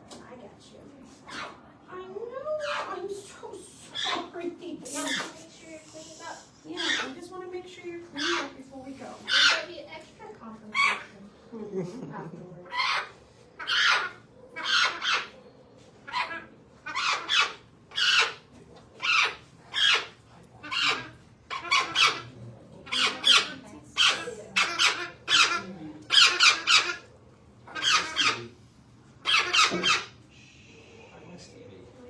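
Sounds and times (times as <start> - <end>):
parrot squawking harshly: 3.9 - 5.4, 6.7 - 7.3, 8.2 - 8.6, 9.2 - 9.7, 12.6 - 15.4, 16.0 - 27.1, 27.7 - 28.6, 29.2 - 30.2.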